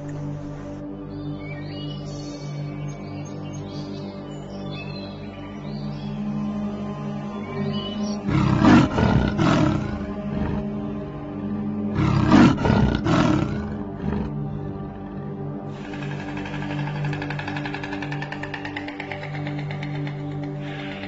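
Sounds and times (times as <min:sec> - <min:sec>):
background music: 0:00.0 - 0:21.0
leopard roaring: 0:08.0 - 0:11.2, 0:11.8 - 0:18.4.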